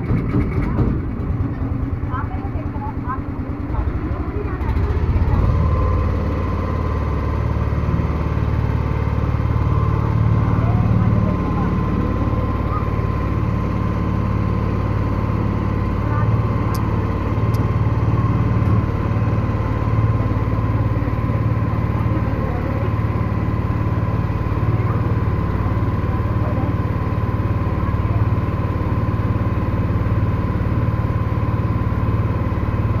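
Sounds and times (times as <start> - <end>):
boat engine droning: 0.0 - 33.0.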